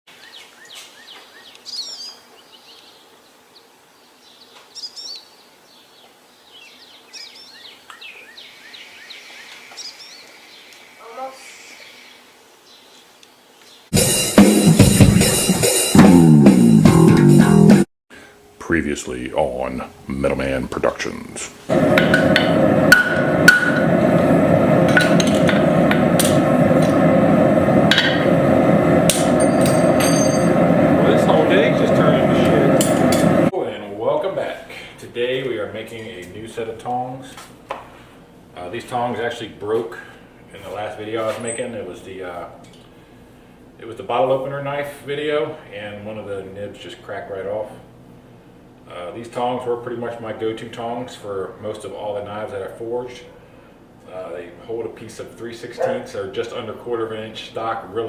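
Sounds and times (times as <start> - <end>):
faint steady hiss: 0.1 - 14.2, 18.1 - 22.1, 33.5 - 58.0
birds warbling: 0.2 - 13.9
soft bird chirps: 0.2 - 13.9
steady rushing noise: 19.1 - 33.5
hammer striking steel on anvil: 21.9 - 24.0, 24.8 - 27.0, 27.9 - 28.4, 29.1 - 30.7, 32.7 - 33.4.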